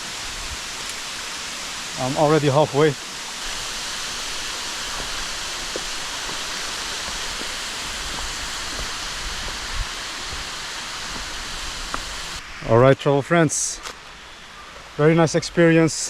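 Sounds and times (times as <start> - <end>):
rushing water: 0.0 - 12.8.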